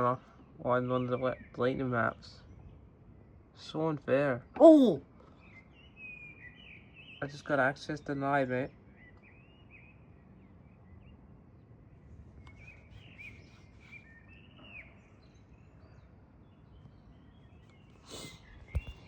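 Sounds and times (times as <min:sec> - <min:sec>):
low outdoor background noise: 0:00.0 - 0:19.0
faint bird chirps: 0:04.2 - 0:19.0.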